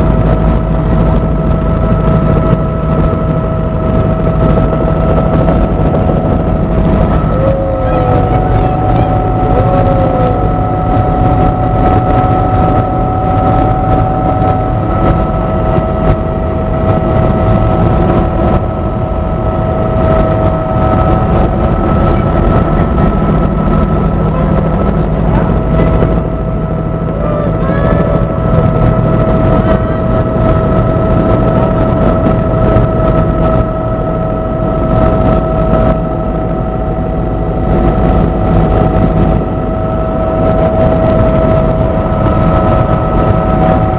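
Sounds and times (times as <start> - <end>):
helicopter engine and rotor noise: 0.0 - 43.9
constant high tones: 3.0 - 31.3.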